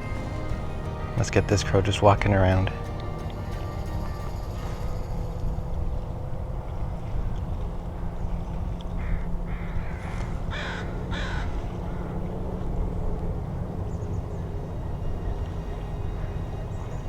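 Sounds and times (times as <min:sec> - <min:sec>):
low background rumble: 0:00.0 - 0:17.0
crow cawing: 0:08.9 - 0:12.2.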